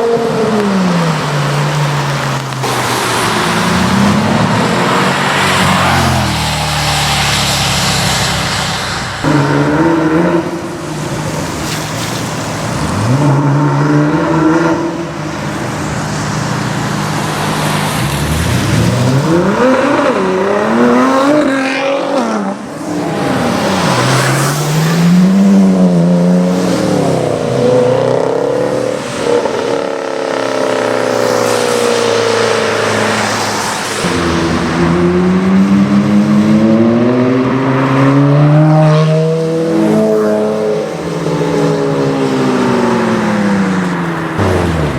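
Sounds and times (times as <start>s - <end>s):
sports car engines accelerating: 0.0s - 44.9s.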